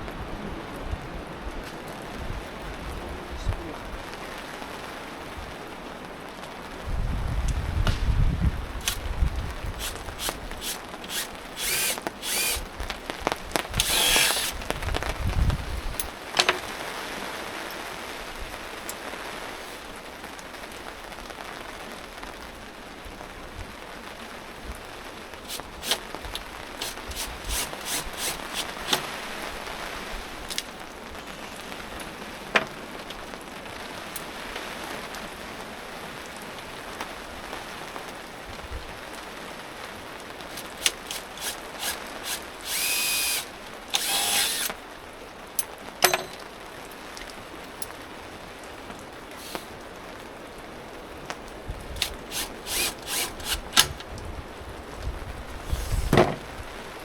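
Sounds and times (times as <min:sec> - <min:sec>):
rain hissing: 0:02.3 - 0:21.1, 0:24.1 - 0:33.0, 0:39.8 - 0:45.9, 0:46.6 - 0:50.5
power drill-driver running: 0:09.8 - 0:12.7, 0:13.8 - 0:14.6, 0:25.5 - 0:26.0, 0:26.8 - 0:29.1, 0:40.5 - 0:44.8, 0:52.3 - 0:53.9, 0:55.7 - 0:56.1.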